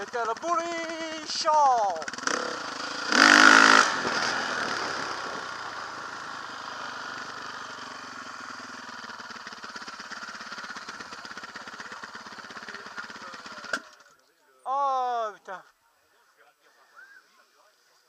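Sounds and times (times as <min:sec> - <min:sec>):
dirt bike engine idling: 0:00.0 - 0:14.2.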